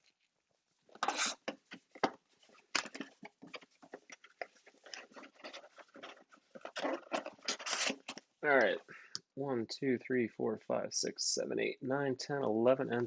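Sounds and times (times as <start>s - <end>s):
plastic wrap and cardboard tearing: 1.0s - 1.6s, 2.7s - 8.2s.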